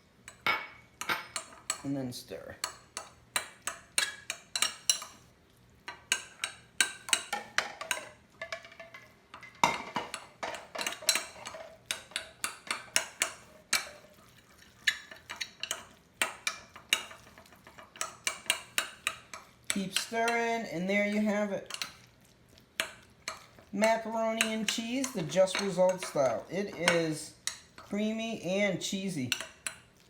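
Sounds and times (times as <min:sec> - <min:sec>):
utensil clinking against bowl: 0:14.8 - 0:22.1, 0:22.8 - 0:29.9.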